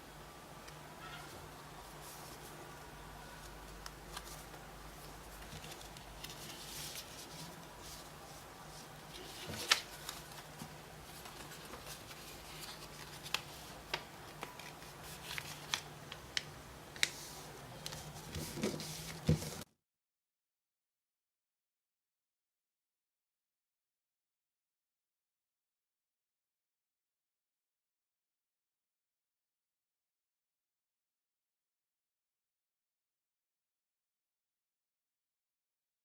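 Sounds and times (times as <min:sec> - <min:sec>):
faint steady hum: 0:00.0 - 0:19.7
paper rustling and crinkling: 0:03.4 - 0:19.7.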